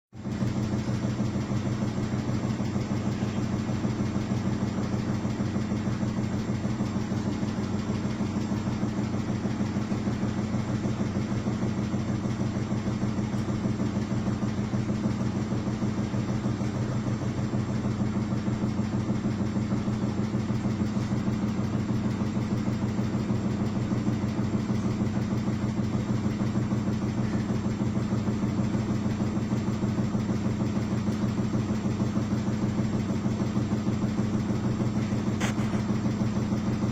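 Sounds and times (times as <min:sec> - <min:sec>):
washing machine humming: 0:00.2 - 0:36.9.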